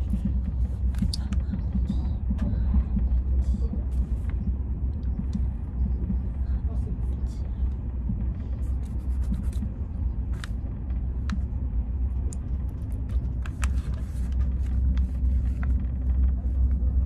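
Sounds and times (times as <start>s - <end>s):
train rumbling: 0.0s - 17.0s
pen and paper book handling: 13.1s - 15.8s.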